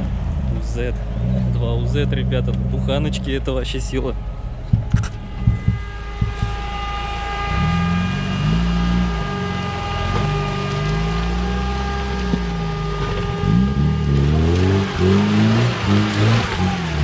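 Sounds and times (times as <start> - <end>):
off-road vehicle engine revving: 0.0 - 17.0
steady high whine: 4.4 - 17.0
sharp knocks: 4.7 - 6.8.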